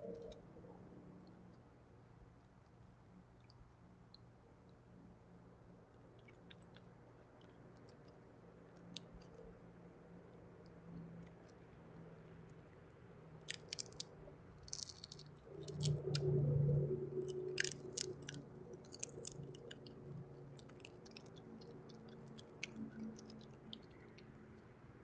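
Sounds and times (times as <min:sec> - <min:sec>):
low hum: 0:08.4 - 0:25.0
peanut shells clicking and crunching: 0:13.4 - 0:16.3, 0:17.2 - 0:24.6.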